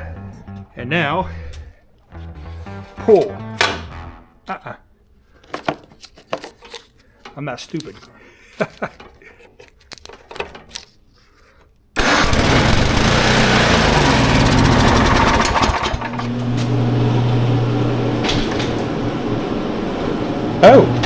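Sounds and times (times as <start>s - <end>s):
snow blower engine running: 12.0s - 18.0s.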